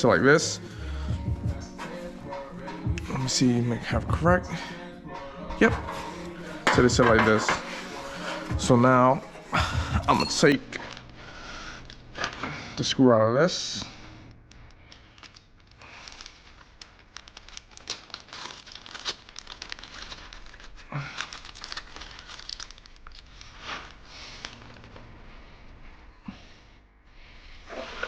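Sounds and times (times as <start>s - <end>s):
rustling: 14.8s - 26.1s.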